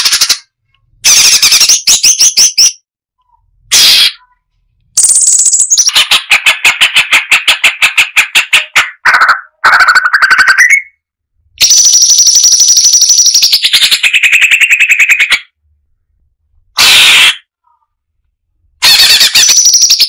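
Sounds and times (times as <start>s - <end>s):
bird song trills: 5.0s - 8.4s, 11.6s - 15.5s, 19.3s - 20.0s.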